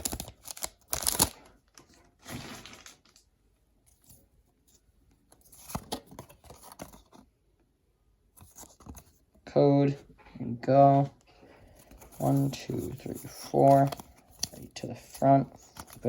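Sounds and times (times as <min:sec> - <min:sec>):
foil wrapper tearing and crinkling: 0:00.0 - 0:01.4, 0:02.2 - 0:03.2.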